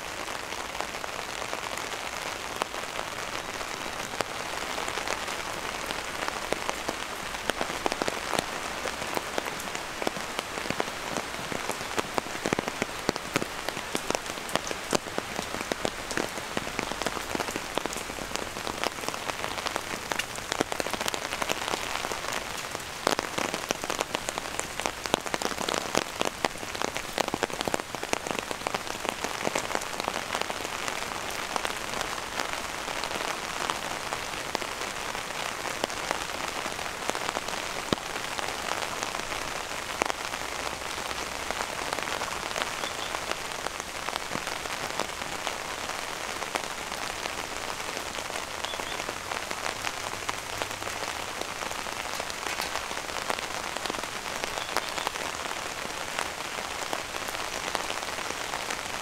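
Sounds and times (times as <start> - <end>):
steady rain hiss: 0.0 - 59.0
raindrop hits: 49.7 - 55.2.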